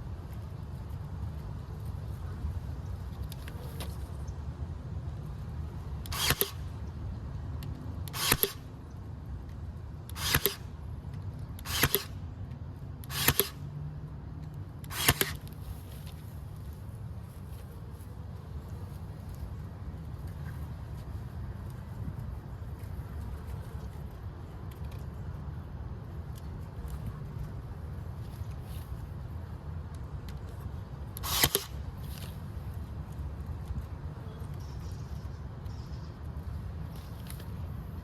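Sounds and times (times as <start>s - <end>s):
short sharp bursts: 6.0s - 6.7s, 8.0s - 8.7s, 10.1s - 10.7s, 11.6s - 12.2s, 13.0s - 13.6s, 14.8s - 15.5s, 31.2s - 31.8s.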